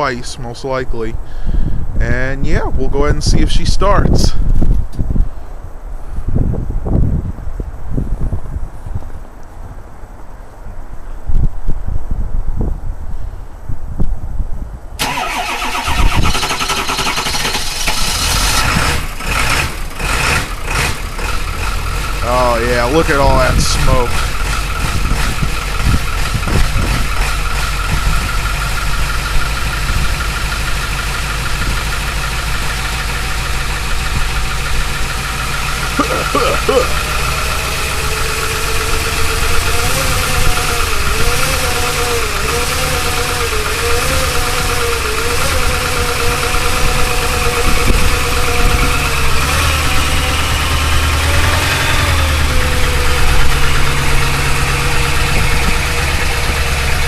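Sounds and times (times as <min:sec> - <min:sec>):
diesel engine idling: 0:15.0 - 0:57.0.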